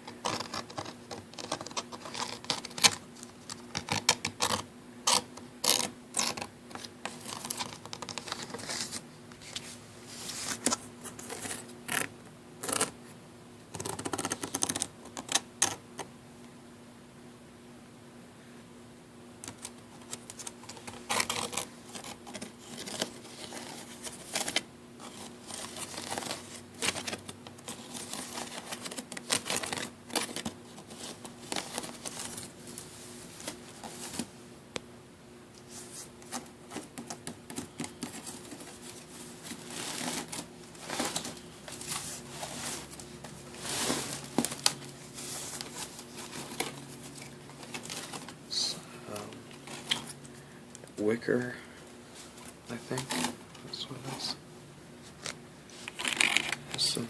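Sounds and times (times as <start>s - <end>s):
faint steady hum: 0.0s - 57.0s
fingernails scratching wicker: 3.8s - 6.5s.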